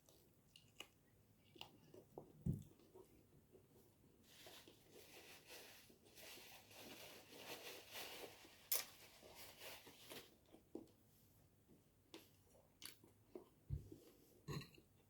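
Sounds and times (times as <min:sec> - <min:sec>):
soft chewing and mouth noises: 0:00.0 - 0:05.1, 0:10.1 - 0:15.0.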